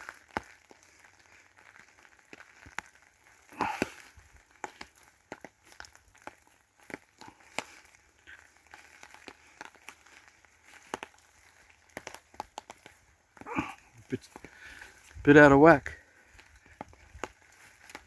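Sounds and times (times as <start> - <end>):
light crackles and crunches: 0.0 - 18.0.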